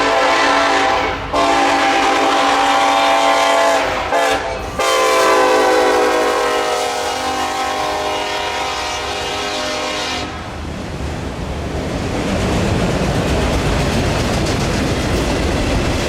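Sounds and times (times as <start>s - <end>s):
locomotive air horn blast: 0.0s - 10.5s
train rumbling and rattling by: 0.0s - 16.0s.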